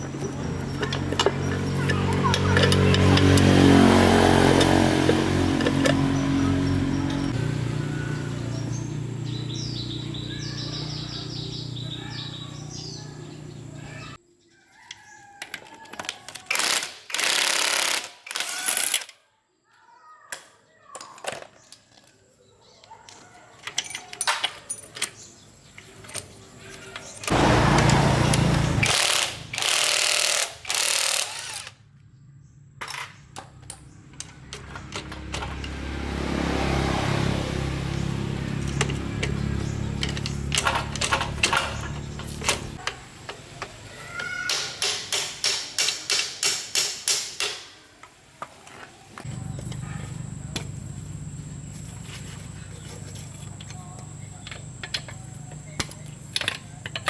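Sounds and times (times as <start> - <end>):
power tool running: 0.2 - 13.8, 27.2 - 31.8.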